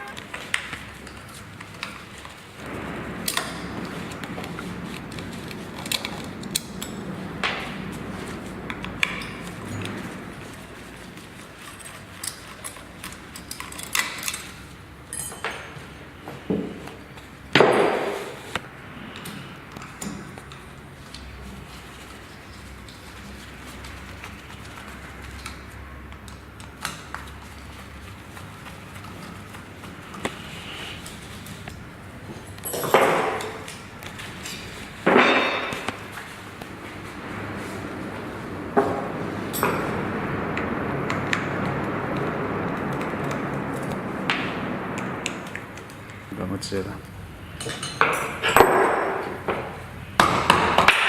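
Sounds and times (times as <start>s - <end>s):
metal tools clinking and knocking: 15.1s - 15.8s, 32.6s - 33.7s.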